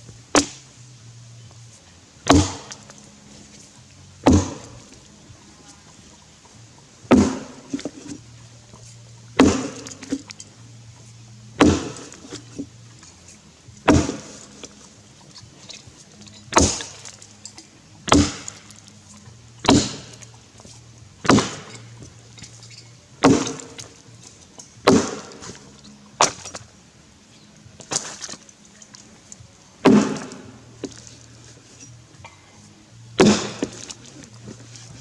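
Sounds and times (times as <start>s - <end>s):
axe chopping into log: 0.3s - 0.6s, 2.2s - 2.9s, 4.2s - 4.9s, 7.1s - 8.2s, 9.4s - 10.3s, 11.6s - 12.7s, 13.9s - 14.7s, 16.5s - 17.2s, 18.1s - 18.7s, 19.6s - 20.3s, 21.2s - 22.6s, 23.2s - 23.9s, 24.8s - 25.6s, 29.8s - 31.0s, 33.2s - 35.0s.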